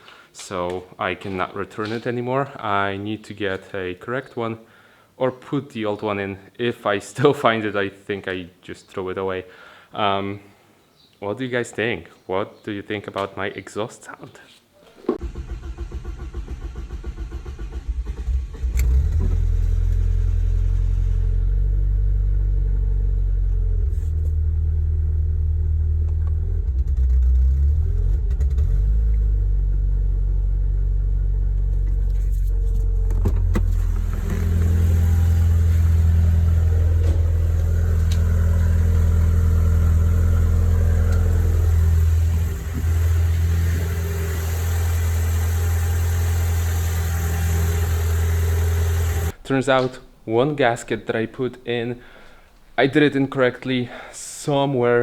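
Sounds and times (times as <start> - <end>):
car starter cranking: 15.2 - 21.2, 31.7 - 49.4
car engine running deep exhaust: 18.7 - 49.3.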